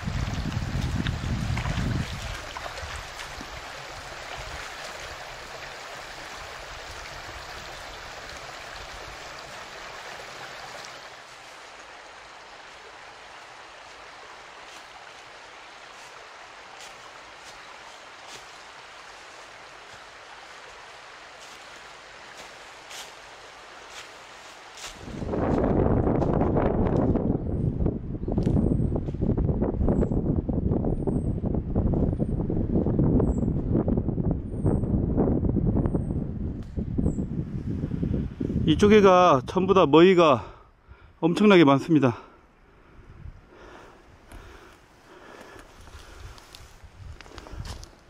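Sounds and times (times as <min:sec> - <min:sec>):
running water rushing: 0:00.0 - 0:25.5.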